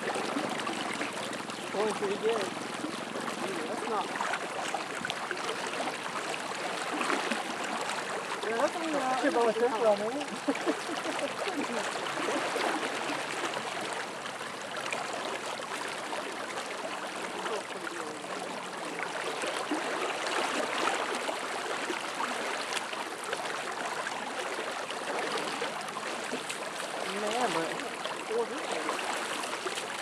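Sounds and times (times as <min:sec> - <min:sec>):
fast-flowing river water rushing: 0:00.0 - 0:30.0.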